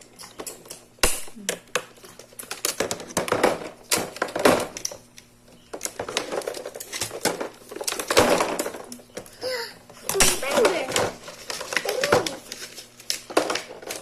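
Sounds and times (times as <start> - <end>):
packaging rustling: 10.4 - 14.0.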